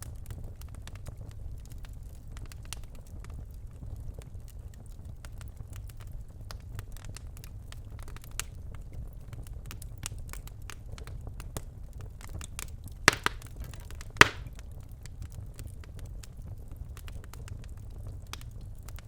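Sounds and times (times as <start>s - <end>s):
fire crackling in fireplace: 0.0s - 19.0s
loud fire pops: 13.1s - 14.6s.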